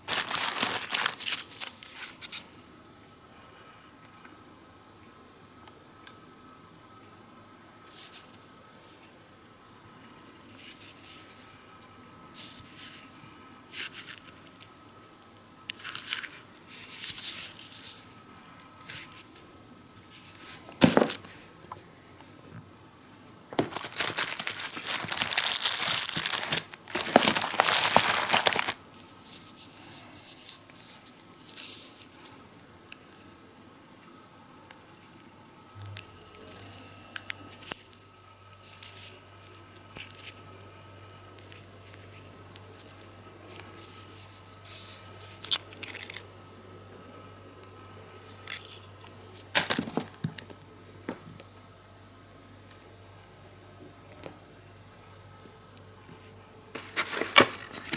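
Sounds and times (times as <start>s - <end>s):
packaging tearing and crinkling: 0.0s - 2.5s, 15.8s - 19.2s, 20.6s - 21.3s, 23.6s - 29.7s, 35.9s - 46.2s, 48.4s - 50.2s, 56.8s - 57.9s.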